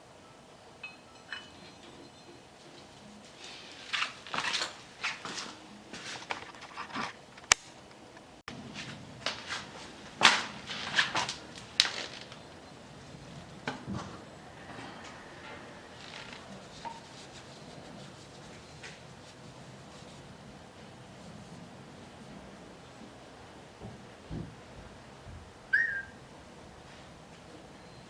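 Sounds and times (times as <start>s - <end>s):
metal tools clinking on workbench: 0.8s - 2.4s.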